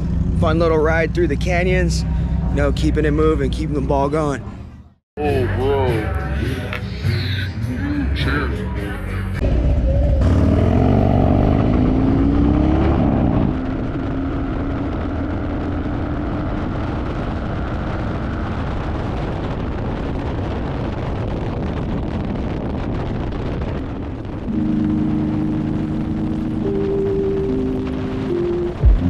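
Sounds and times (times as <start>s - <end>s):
wind and road noise: 0.0s - 29.0s
motorcycle engine revving: 9.4s - 18.7s, 24.5s - 29.0s
steady tones: 24.4s - 29.0s.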